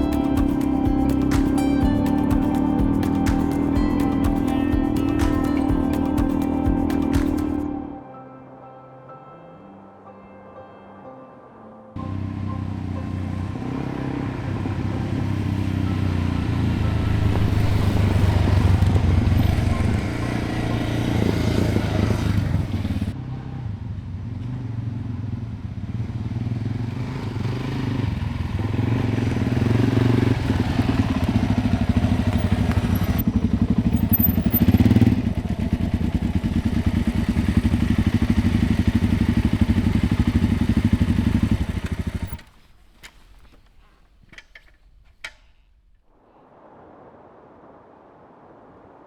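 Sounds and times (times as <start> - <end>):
motorcycle engine running: 0.0 - 7.6, 12.0 - 42.6.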